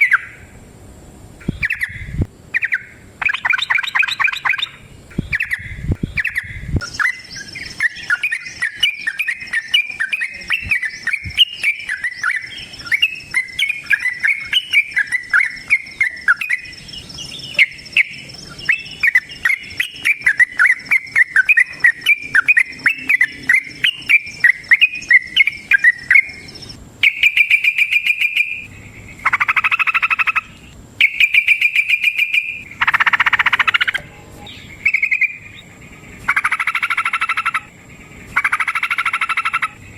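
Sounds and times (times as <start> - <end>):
bird chirping song: 0.0 - 0.6, 1.4 - 39.9
buzzy bird trills: 0.0 - 0.6, 1.3 - 39.9
faint high whine: 0.0 - 39.9.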